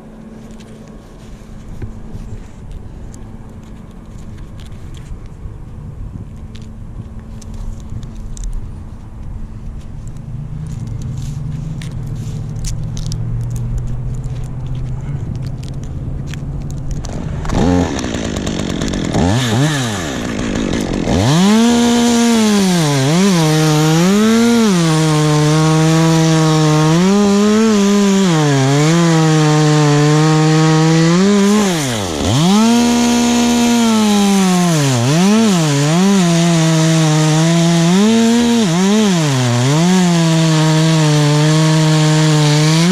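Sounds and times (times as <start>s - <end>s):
chainsaw cutting wood: 16.7s - 42.9s.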